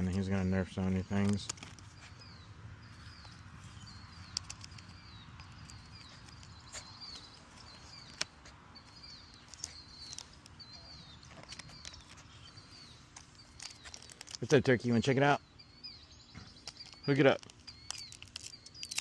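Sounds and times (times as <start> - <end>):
small bird chirping: 0.0 - 19.0
sharp clicks: 4.1 - 12.2, 16.5 - 19.0.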